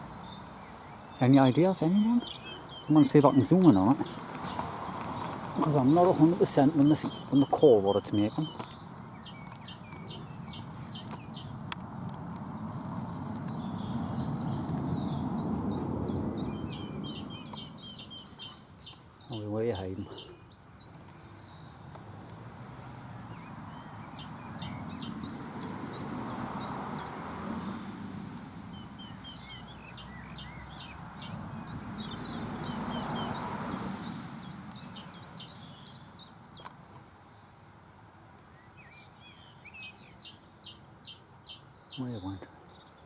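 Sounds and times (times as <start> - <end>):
songbird alarm call: 0.0 - 11.9, 13.4 - 22.1, 23.2 - 36.7, 38.5 - 43.0.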